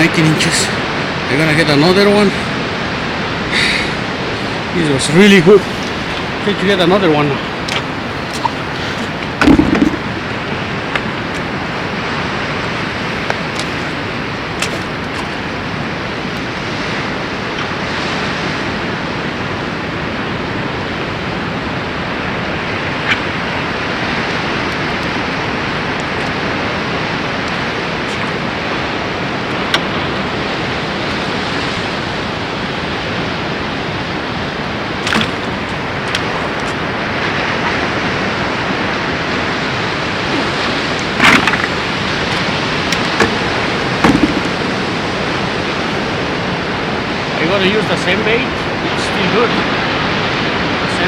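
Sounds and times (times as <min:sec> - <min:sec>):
ocean surf: 0:00.0 - 0:51.0
wind: 0:00.0 - 0:51.0
handling rustles and clicks: 0:40.3 - 0:44.7.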